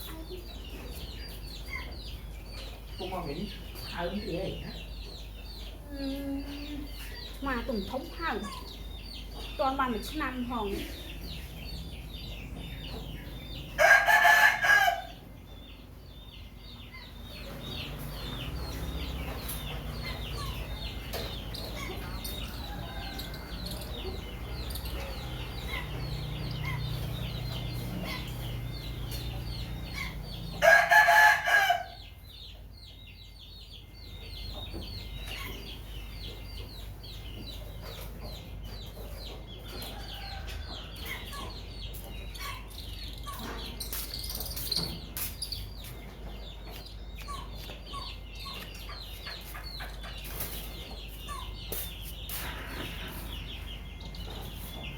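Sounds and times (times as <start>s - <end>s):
high chirping: 15.5s - 31.3s, 40.0s - 54.9s.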